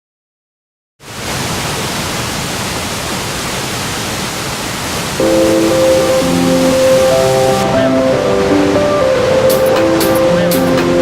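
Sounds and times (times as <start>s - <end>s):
steady rushing noise: 4.2s - 11.0s.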